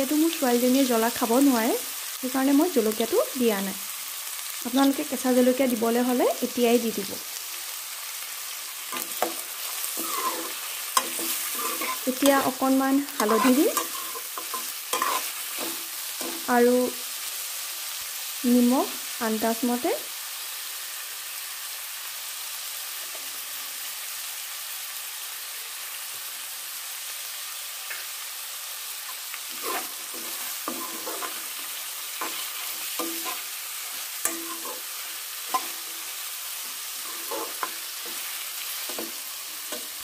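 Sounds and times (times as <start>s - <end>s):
onions sizzling in hot oil: 0.0s - 40.0s
ladle scraping and knocking pan: 8.9s - 12.2s, 13.2s - 16.4s, 29.6s - 31.6s.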